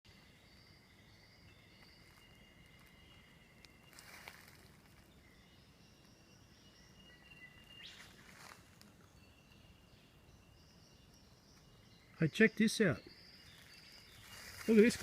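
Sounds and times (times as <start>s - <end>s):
birds calling: 0.1s - 15.0s
insects calling: 0.1s - 15.0s
rustles: 1.8s - 5.2s, 7.8s - 9.2s, 13.4s - 15.0s.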